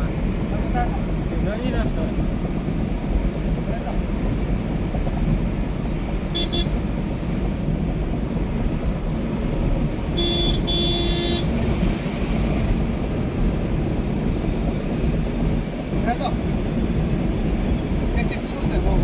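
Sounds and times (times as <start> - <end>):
engine rumble: 0.0 - 19.0
horn honking: 6.2 - 7.0, 10.1 - 12.0.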